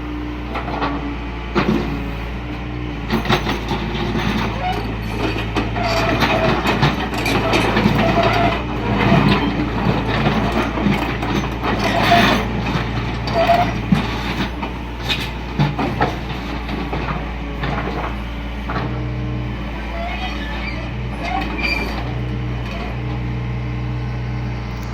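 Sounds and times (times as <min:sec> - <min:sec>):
diesel engine running: 0:00.0 - 0:24.9
excavator clanking and knocking: 0:00.2 - 0:24.2
short metallic squeals: 0:04.2 - 0:10.7, 0:11.7 - 0:12.5, 0:13.3 - 0:14.5, 0:19.7 - 0:23.0.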